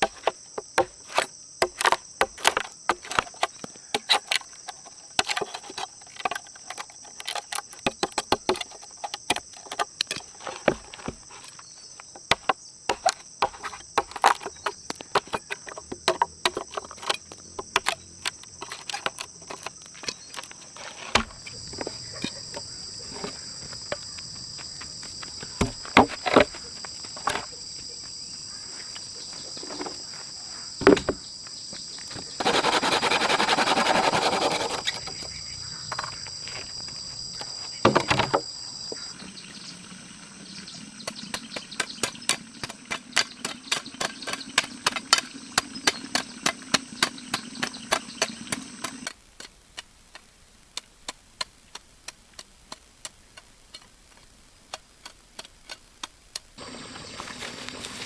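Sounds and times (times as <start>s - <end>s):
crickets chirping: 0.0s - 49.3s, 56.5s - 58.0s
sharp knocks and taps: 30.8s - 31.2s.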